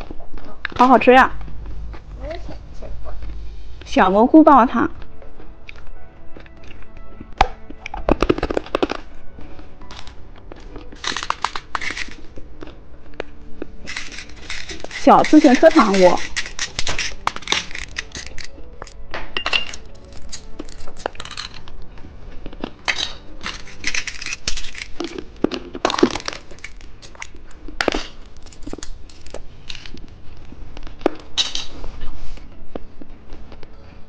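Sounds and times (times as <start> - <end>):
hard candy crunching: 5.4 - 9.2, 9.8 - 19.0, 19.7 - 30.0
candy wrapper crackling: 9.9 - 12.4, 13.8 - 19.0, 19.8 - 21.8, 22.5 - 30.0.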